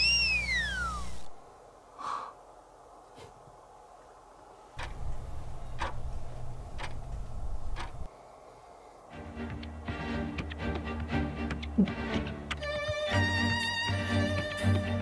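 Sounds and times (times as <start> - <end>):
low steady hum: 0.0 - 15.0
regular ticking: 4.8 - 8.1.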